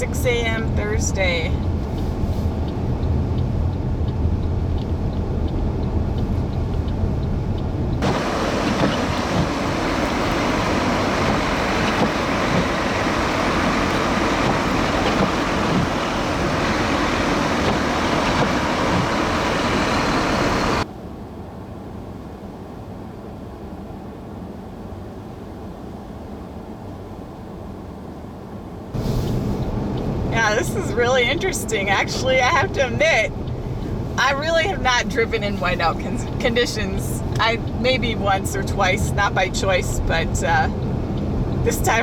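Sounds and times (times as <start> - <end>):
car road noise drone: 0.0 - 42.0
loud hissing rush: 8.0 - 20.8.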